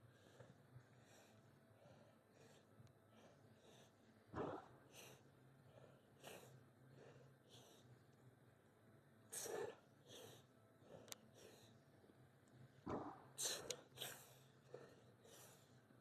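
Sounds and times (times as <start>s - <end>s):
man breathing hard: 0.0s - 8.2s, 9.2s - 16.0s.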